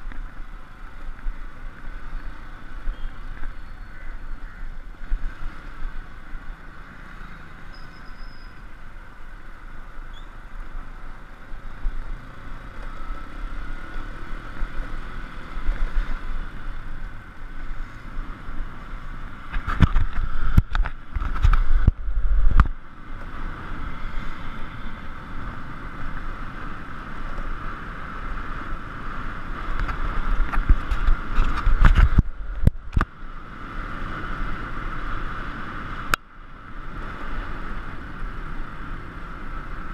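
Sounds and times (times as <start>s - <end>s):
wind buffeting microphone: 29.6s - 33.1s.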